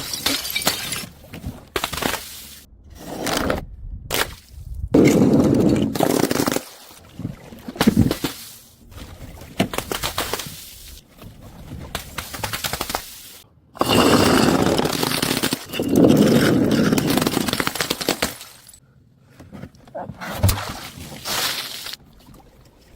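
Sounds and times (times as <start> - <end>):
crunchy objects cracking: 13.8 - 18.8.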